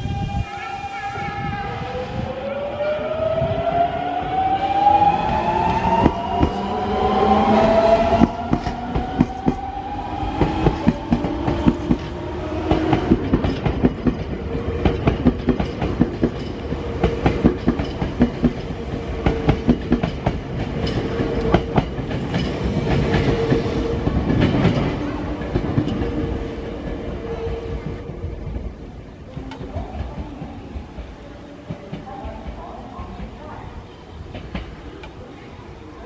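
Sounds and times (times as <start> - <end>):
train wheels clattering over rail joints: 12.7 - 26.2.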